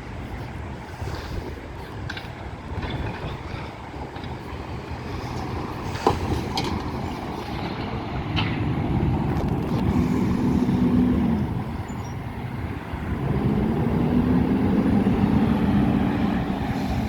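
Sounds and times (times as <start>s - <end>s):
garbage truck engine revving: 8.3s - 17.0s.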